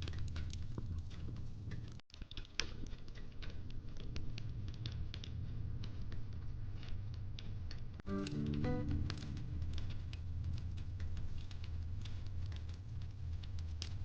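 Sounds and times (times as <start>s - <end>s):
fireplace crackling: 8.1s - 14.0s.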